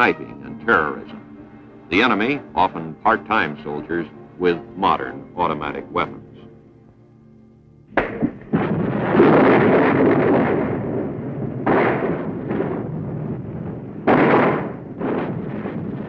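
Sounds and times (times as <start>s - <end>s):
continuous rumble: 0.0s - 16.0s
explosions: 7.9s - 16.0s
gunfire: 7.9s - 16.0s.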